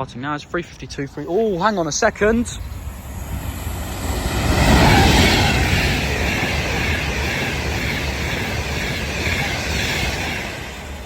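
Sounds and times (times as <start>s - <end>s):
electric train passing at speed: 1.0s - 11.0s.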